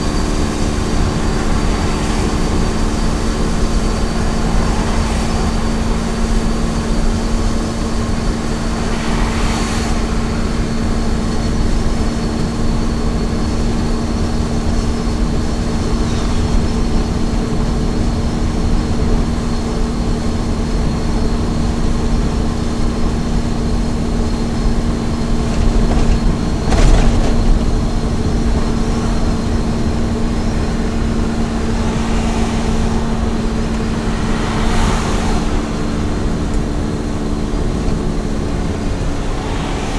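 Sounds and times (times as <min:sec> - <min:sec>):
road noise rush: 0:00.0 - 0:39.9
truck engine hum: 0:00.0 - 0:39.9
brief whooshes: 0:08.2 - 0:12.1, 0:38.8 - 0:39.9.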